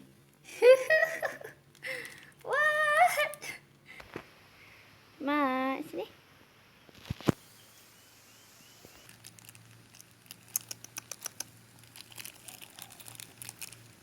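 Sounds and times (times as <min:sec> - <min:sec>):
light crinkling and ticking: 0:01.2 - 0:04.3, 0:08.9 - 0:14.0.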